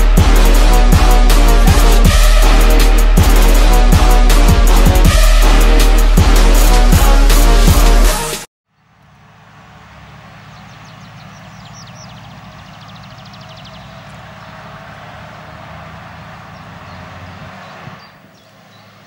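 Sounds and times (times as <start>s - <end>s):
vehicle engine running: 8.7s - 19.0s
bird chirping: 10.0s - 19.0s.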